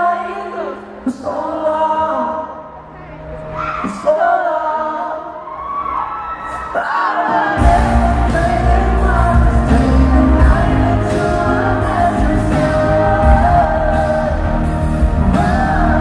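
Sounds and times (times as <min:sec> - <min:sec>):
gliding vocal line: 0:06.4 - 0:16.0
band with heavy bass and drums: 0:07.6 - 0:16.0.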